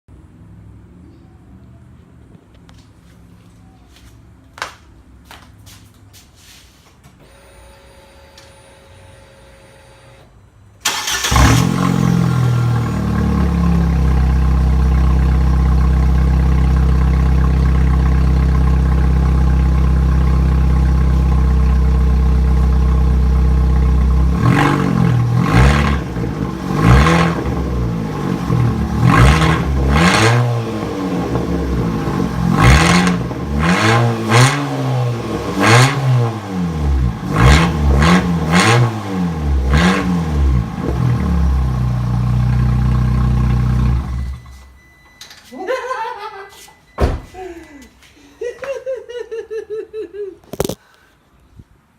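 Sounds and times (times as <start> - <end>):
car engine idling: 10.9 - 33.7, 40.4 - 44.4.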